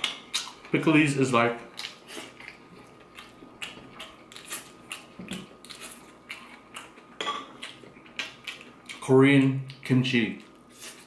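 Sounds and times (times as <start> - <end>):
chewing crisp crunches: 1.7 - 9.0.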